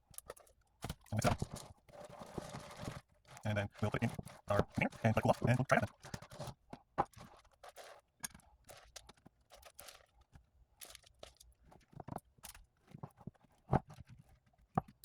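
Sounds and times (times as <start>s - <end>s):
rustling scrapes: 1.2s - 6.6s.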